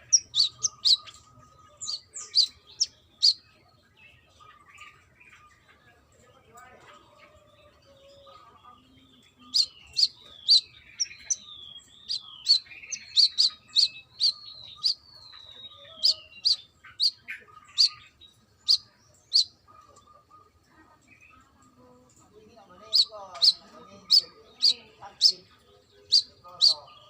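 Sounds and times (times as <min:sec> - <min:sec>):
sunbird singing high chips: 0:00.0 - 0:01.2, 0:09.5 - 0:18.0, 0:22.8 - 0:25.4.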